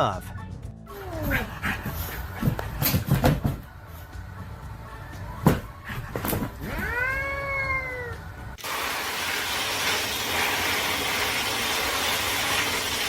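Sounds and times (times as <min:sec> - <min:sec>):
cat meowing: 0:06.6 - 0:08.3.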